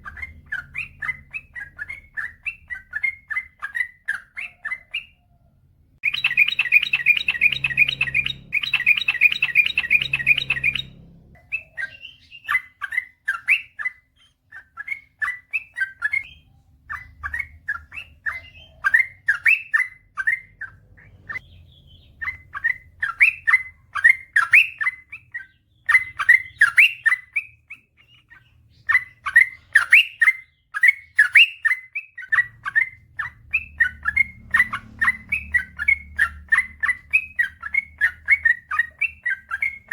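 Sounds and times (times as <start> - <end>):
bulbul singing rapid song: 0.0 - 5.3, 6.0 - 39.9
low hum: 6.0 - 11.5.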